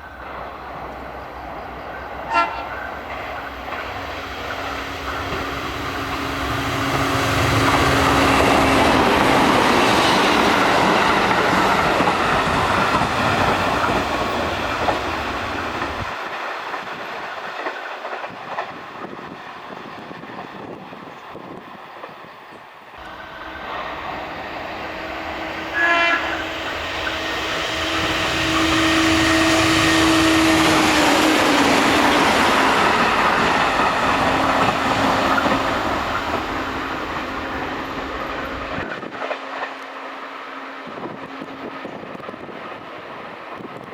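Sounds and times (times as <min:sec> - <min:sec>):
electric train passing: 0:00.0 - 0:43.9
train horn blast: 0:02.2 - 0:09.2, 0:23.0 - 0:39.1.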